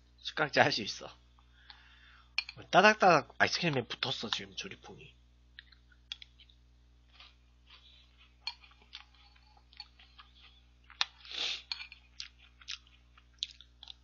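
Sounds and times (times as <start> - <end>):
person chewing crunchy food: 5.6 - 14.0.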